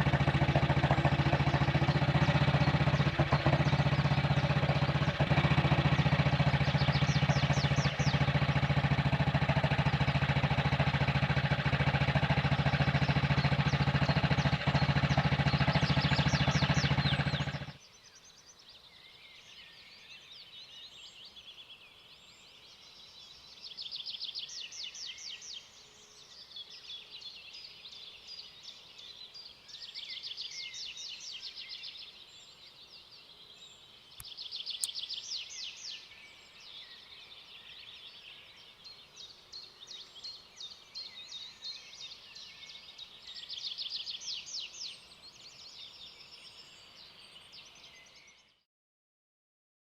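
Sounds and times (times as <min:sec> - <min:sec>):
motorcycle engine idling: 0:00.0 - 0:17.8
birds chirping trills: 0:00.0 - 0:48.6.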